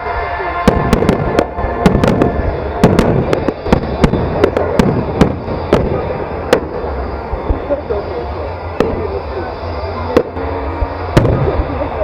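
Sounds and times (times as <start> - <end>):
continuous low rumble: 0.0 - 12.0
fireworks bangs: 0.0 - 12.0.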